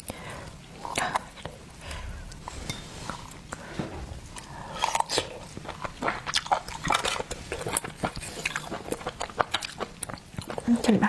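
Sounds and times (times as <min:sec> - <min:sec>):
chewing shellfish wet crunches: 0:04.4 - 0:11.0.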